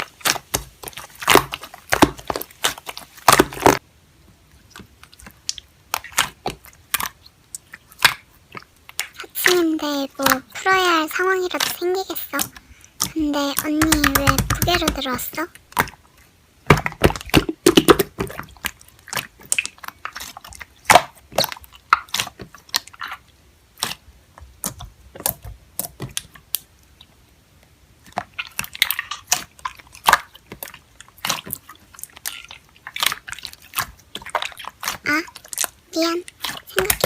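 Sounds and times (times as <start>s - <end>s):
slime squished by hand: 0.0s - 3.8s, 4.6s - 27.1s, 28.0s - 37.0s.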